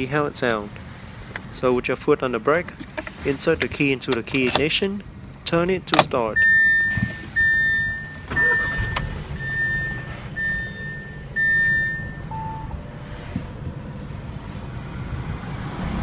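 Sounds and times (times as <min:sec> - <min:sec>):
car engine idling: 0:00.0 - 0:15.8
dashboard warning chime: 0:05.5 - 0:14.0
short low beep: 0:06.4 - 0:13.4.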